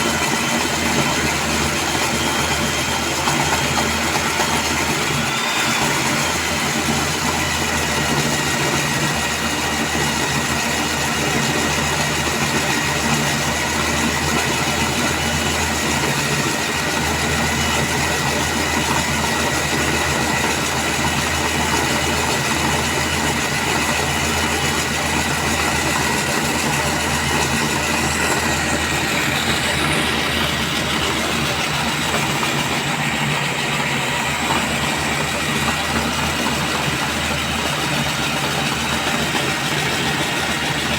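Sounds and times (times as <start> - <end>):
core drill boring concrete: 0.0 - 40.9.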